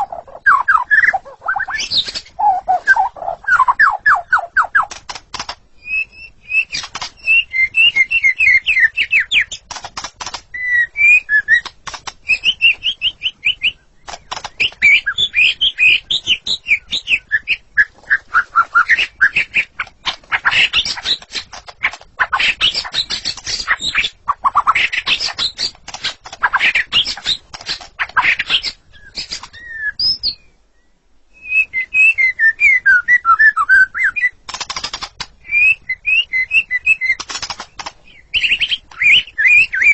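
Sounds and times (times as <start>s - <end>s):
songbird singing whistled notes: 0.0s - 5.0s, 5.8s - 9.7s, 10.5s - 25.8s, 26.4s - 39.9s
bird clicking notes: 3.8s - 5.6s, 6.6s - 16.6s, 19.2s - 23.8s, 24.6s - 29.7s, 34.4s - 35.4s, 36.8s - 39.7s.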